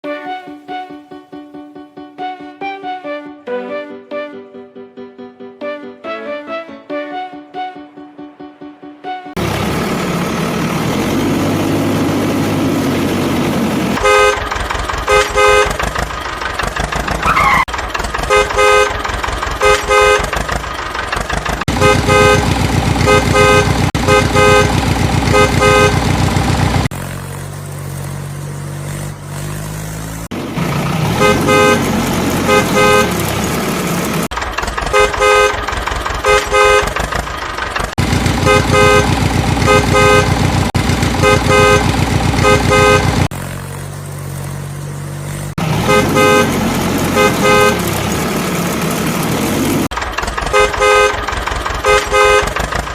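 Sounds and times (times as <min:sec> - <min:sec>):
horn honking: 0:00.0 - 0:01.3, 0:09.0 - 0:27.0, 0:29.3 - 0:37.4, 0:38.0 - 0:43.5, 0:45.6 - 0:52.9
tractor engine chugging: 0:09.4 - 0:52.9.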